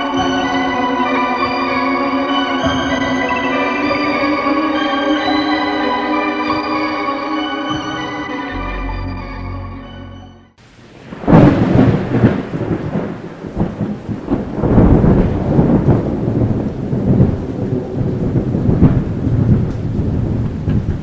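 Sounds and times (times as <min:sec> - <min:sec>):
heavy rain: 0:00.0 - 0:09.4, 0:10.6 - 0:21.0
organ music: 0:00.0 - 0:10.6
thunder rumbling: 0:10.8 - 0:21.0.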